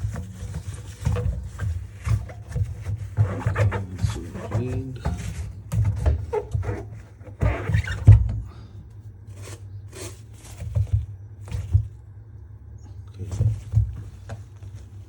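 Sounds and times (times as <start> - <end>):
scrubbing rubber door seal: 0.0 - 8.6
low steady hum: 0.0 - 15.0.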